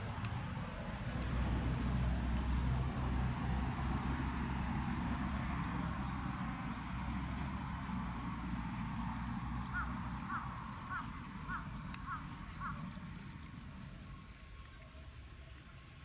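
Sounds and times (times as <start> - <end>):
bird calling: 9.6 - 13.0.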